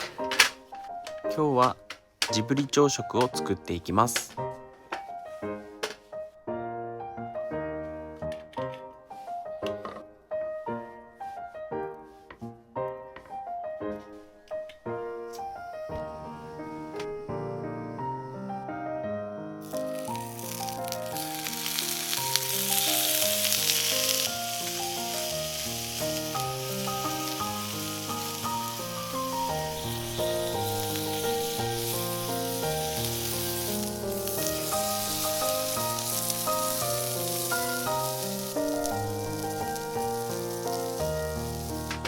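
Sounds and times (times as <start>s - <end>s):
piano music: 0.0s - 42.0s
food sizzling in a skillet: 19.6s - 42.0s.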